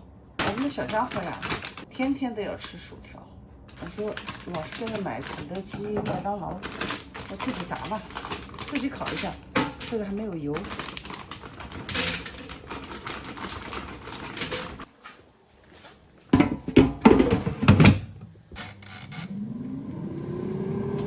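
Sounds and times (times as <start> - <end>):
frozen fries rattling into basket: 0.4 - 1.9, 3.7 - 14.9
air fryer fan humming: 19.1 - 21.0.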